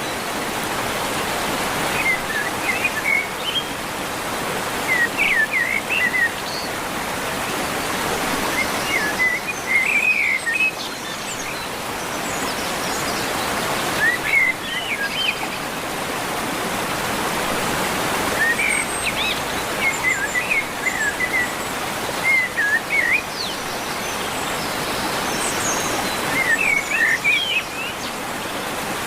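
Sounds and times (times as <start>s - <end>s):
songbird chirping: 18.4s - 28.8s.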